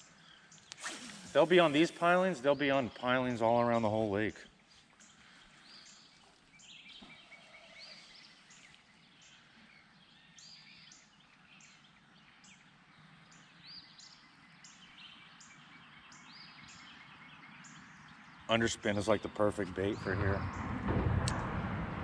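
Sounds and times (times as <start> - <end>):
small birds chirping: 0.0 - 20.8
soft outdoor hiss: 0.1 - 19.0.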